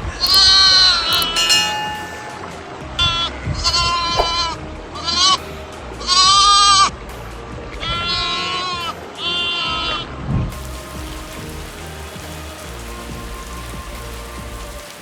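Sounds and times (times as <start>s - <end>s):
background music: 10.5s - 15.0s.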